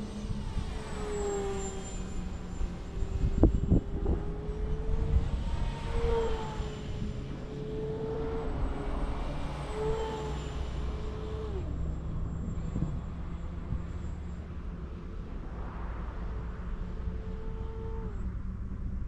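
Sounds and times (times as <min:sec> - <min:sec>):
low wind rumble: 0:00.0 - 0:19.0
model plane motor whining: 0:00.1 - 0:14.0.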